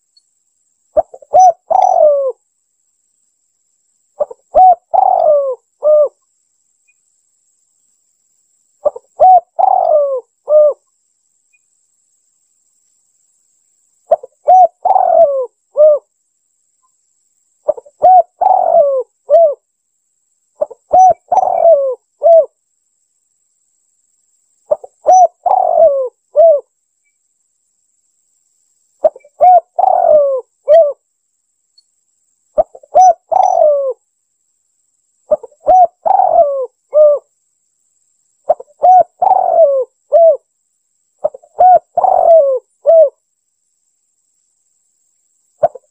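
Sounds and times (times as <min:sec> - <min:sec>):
dove cooing: 0:01.0 - 0:02.4, 0:04.2 - 0:06.2, 0:08.8 - 0:10.8, 0:14.1 - 0:16.1, 0:17.6 - 0:19.6, 0:20.6 - 0:22.5, 0:24.7 - 0:26.7, 0:29.0 - 0:31.0, 0:32.6 - 0:34.0, 0:35.3 - 0:37.3, 0:38.5 - 0:40.5, 0:41.2 - 0:43.2, 0:45.6 - 0:45.9.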